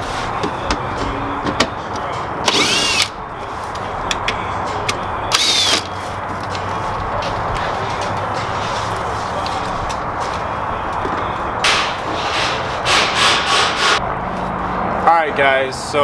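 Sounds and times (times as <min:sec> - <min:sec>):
cordless power tool whirring: 0:02.5 - 0:03.1, 0:05.3 - 0:06.0.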